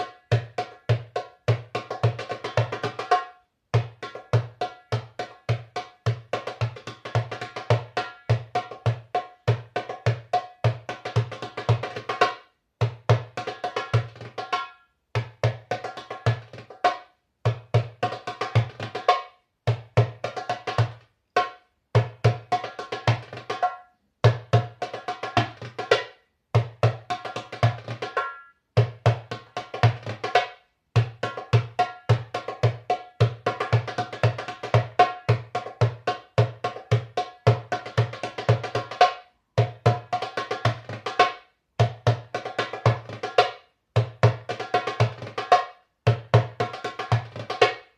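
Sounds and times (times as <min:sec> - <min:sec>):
hand drum playing: 0:31.0 - 0:41.2, 0:41.8 - 0:43.4, 0:44.0 - 0:47.8.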